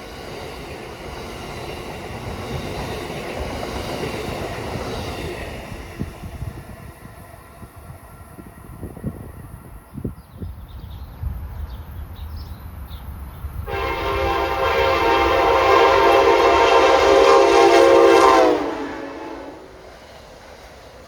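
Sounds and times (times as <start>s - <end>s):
passing train rumble: 0.0s - 21.0s
locomotive air horn blast: 13.7s - 19.8s.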